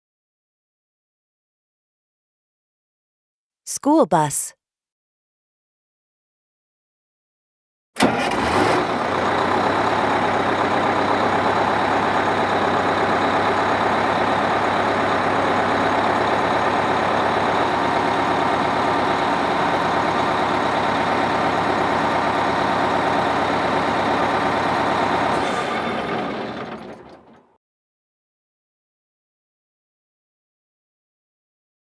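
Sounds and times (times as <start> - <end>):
bus engine running: 8.0 - 27.6.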